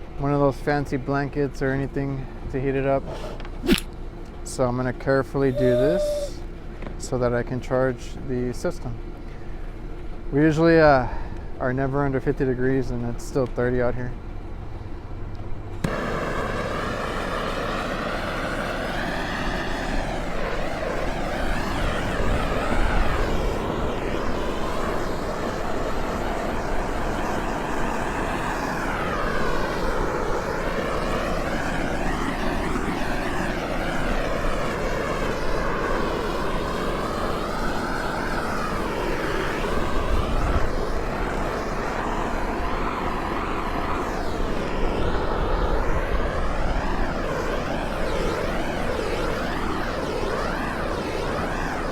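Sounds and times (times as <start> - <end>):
gas torch flame roaring: 2.0 - 4.0, 15.8 - 51.9.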